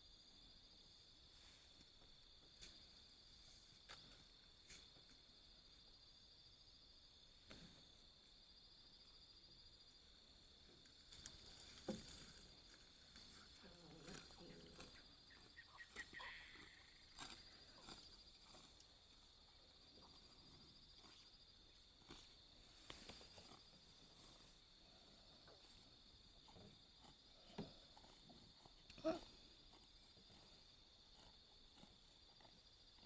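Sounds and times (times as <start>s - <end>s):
insect chirring: 14.2s - 19.3s.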